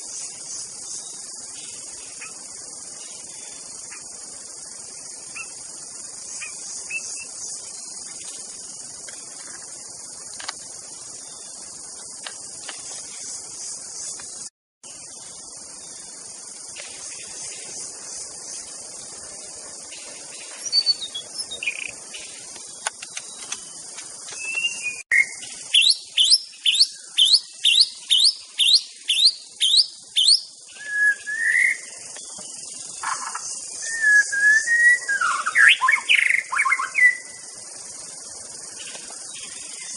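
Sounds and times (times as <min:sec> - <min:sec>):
crickets trilling: 0:00.0 - 0:39.9
bird whistling song: 0:20.5 - 0:22.0, 0:24.3 - 0:32.0, 0:33.0 - 0:37.4.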